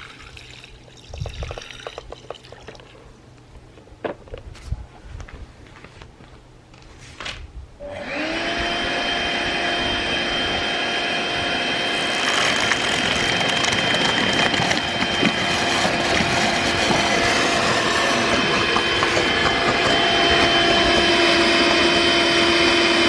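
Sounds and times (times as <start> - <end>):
vacuum motor whine: 7.8 - 23.0
rushing air: 9.8 - 23.0.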